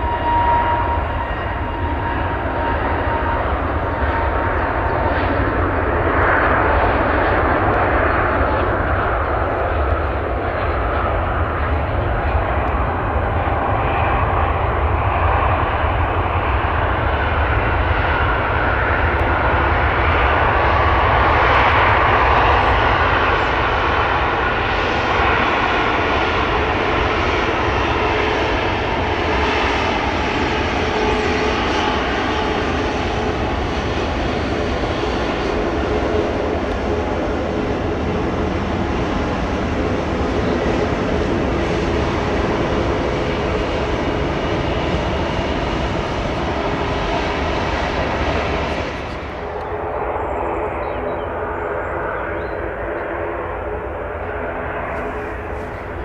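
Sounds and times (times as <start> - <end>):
jet airliner engines: 0.0 - 56.0.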